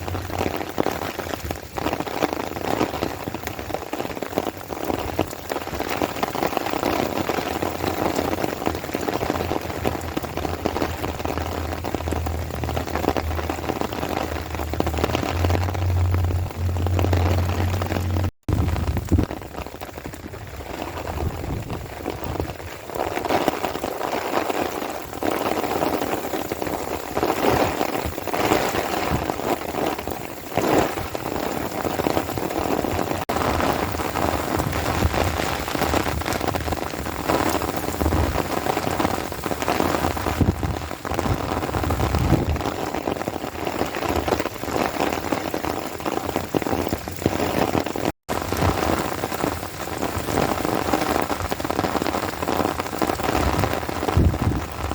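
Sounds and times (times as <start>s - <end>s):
rain pattering: 0.0s - 54.9s.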